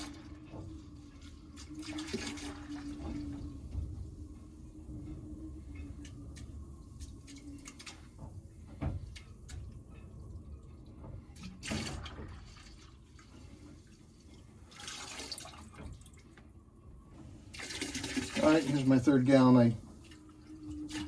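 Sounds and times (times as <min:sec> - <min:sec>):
liquid pouring into a bucket: 0:00.0 - 0:03.8, 0:11.4 - 0:14.1, 0:14.7 - 0:16.2, 0:17.5 - 0:21.0.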